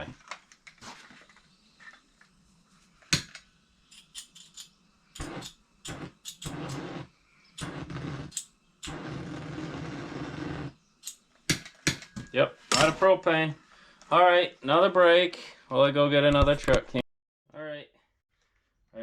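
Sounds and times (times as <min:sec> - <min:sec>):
propane torch sputtering hiss: 0:00.1 - 0:11.6.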